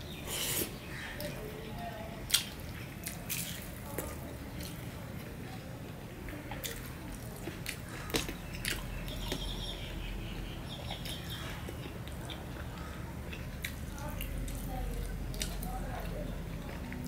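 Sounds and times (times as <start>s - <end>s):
person chewing food: 6.6s - 9.5s, 10.7s - 17.0s.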